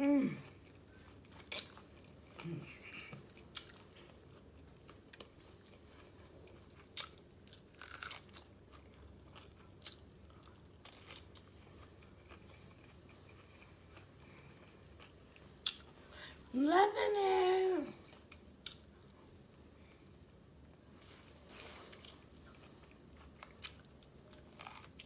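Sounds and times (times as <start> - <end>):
biting and chewing corn: 3.4 - 15.8, 21.5 - 25.0.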